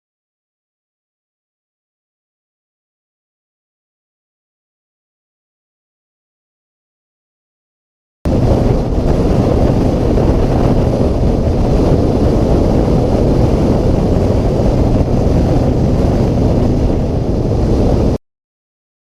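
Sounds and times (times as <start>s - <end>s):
motorcycle engine drone: 8.3s - 18.2s
wind rushing over microphone: 8.3s - 18.2s.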